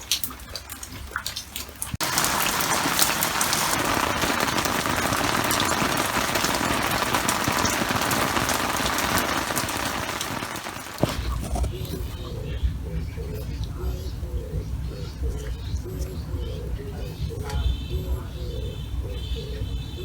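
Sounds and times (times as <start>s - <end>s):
steady rain falling: 1.8s - 11.2s.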